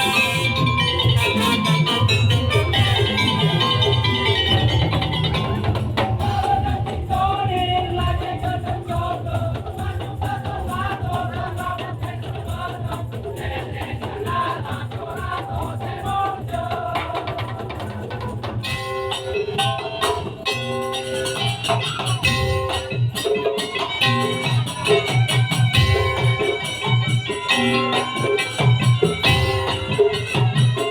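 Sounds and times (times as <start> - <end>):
wavering melody line: 0.0 - 6.3
bright pitched percussion tones: 0.0 - 7.8, 18.6 - 30.9
heavy drumming: 0.0 - 20.7, 21.4 - 30.9
rattling percussion: 0.0 - 30.9.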